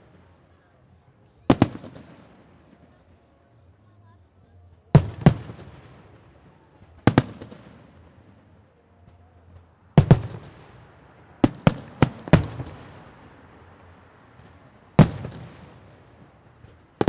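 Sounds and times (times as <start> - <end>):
fireworks bangs echoing: 1.5 - 2.8, 5.0 - 8.5, 10.0 - 13.7, 14.4 - 17.0.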